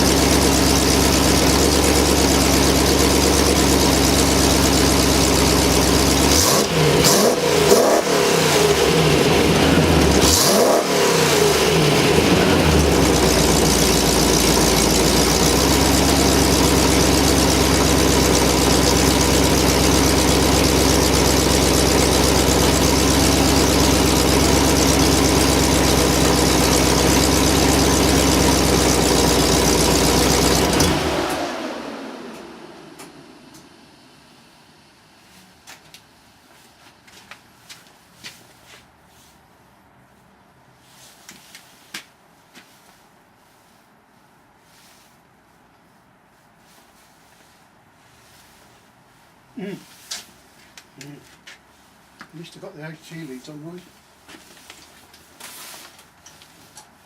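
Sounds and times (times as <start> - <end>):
car engine revving: 0.0 - 33.6.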